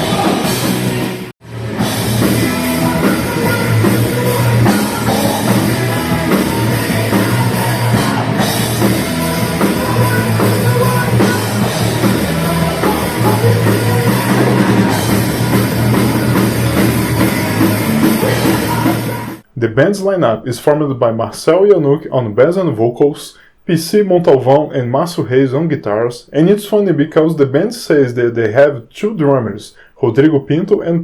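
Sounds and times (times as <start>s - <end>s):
fast rock drumming: 0.0s - 19.4s
distorted guitars and bass: 0.0s - 20.6s.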